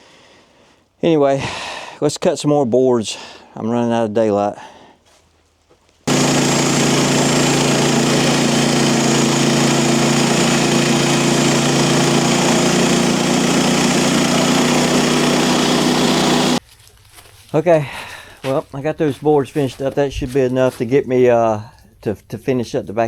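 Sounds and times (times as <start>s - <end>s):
sawmill gasoline engine running: 6.1s - 16.6s.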